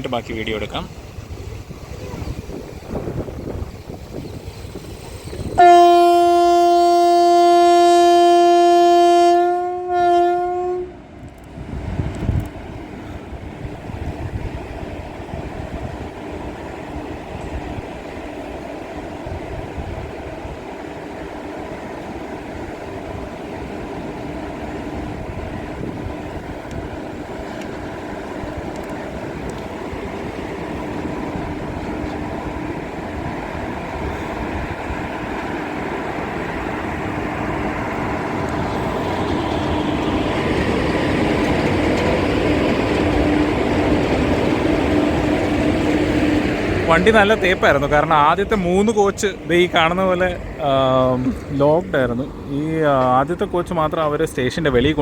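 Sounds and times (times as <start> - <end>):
low rumble of train: 0.0 - 55.0
train horn long blast: 5.6 - 11.0.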